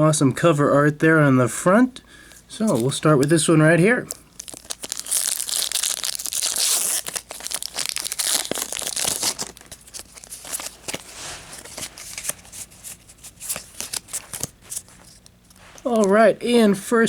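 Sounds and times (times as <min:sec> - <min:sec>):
cards rustling: 0:02.5 - 0:16.3
wrapper crinkling: 0:04.0 - 0:16.2.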